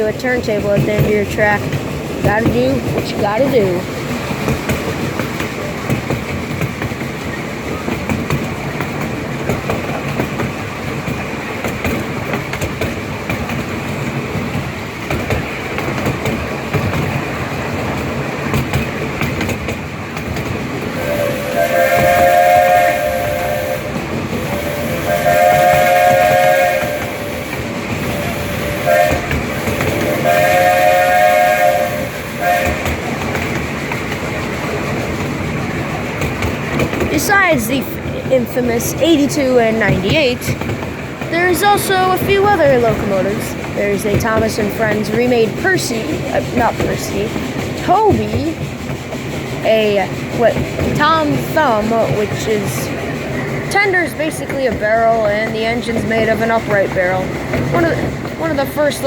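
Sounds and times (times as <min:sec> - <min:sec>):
train clattering on rails: 0:00.0 - 0:59.0
steam locomotive whistle: 0:20.9 - 0:33.0.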